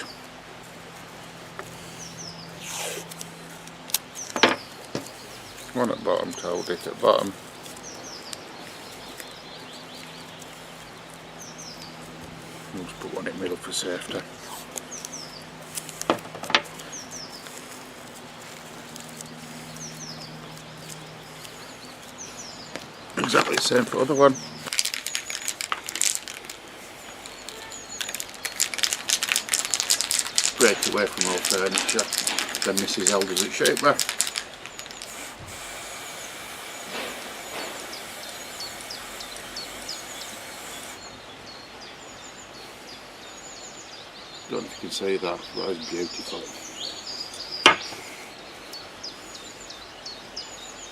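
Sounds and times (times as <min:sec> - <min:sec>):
steady low hum: 0:00.0 - 0:24.7, 0:30.4 - 0:49.8
small bird chirping: 0:01.7 - 0:50.9
spray paint can hissing: 0:02.6 - 0:04.3, 0:27.2 - 0:41.1.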